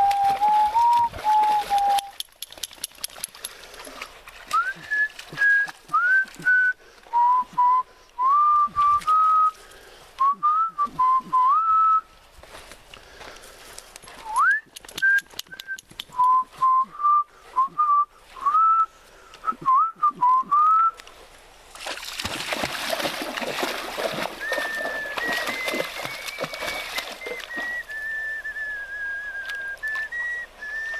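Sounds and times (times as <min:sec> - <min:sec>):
person whistling a tune: 0:00.0 - 0:02.2, 0:04.5 - 0:09.6, 0:10.2 - 0:12.1, 0:14.2 - 0:21.0, 0:24.4 - 0:30.9.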